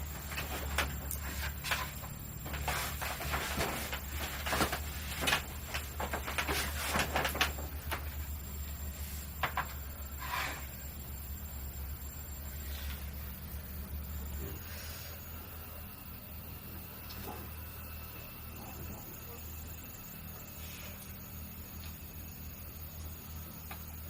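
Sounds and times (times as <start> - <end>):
rustling and scraping: 0.0 - 8.3, 9.0 - 10.8
low hum: 0.0 - 24.0.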